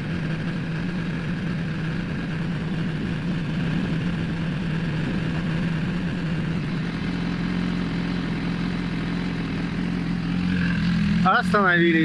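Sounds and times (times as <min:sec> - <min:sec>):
radiator cooling fans running: 0:00.0 - 0:06.8
motorcycle engine idling: 0:00.0 - 0:12.0.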